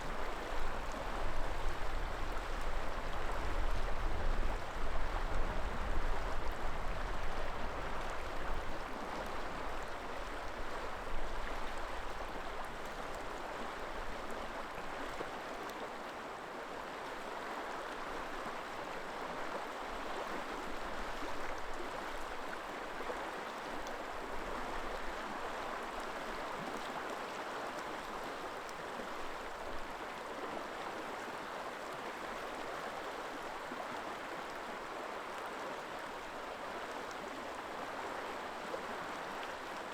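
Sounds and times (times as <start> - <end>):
river water flowing: 0.0 - 39.9
wind rumble on microphone: 0.1 - 8.8.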